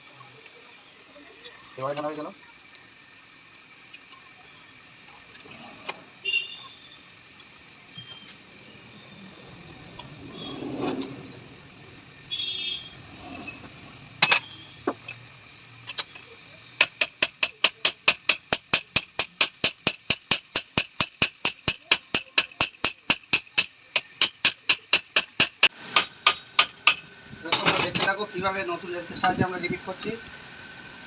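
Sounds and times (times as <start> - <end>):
hammer striking metal: 16.8 - 27.9.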